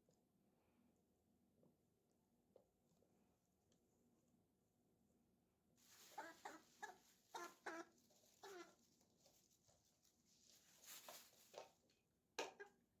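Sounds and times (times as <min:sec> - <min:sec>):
chicken clucking: 0:06.1 - 0:08.9.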